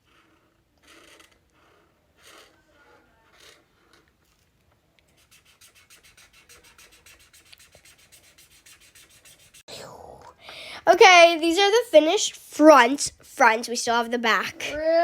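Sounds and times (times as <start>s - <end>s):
markers scribbling on paper: 5.1s - 9.7s.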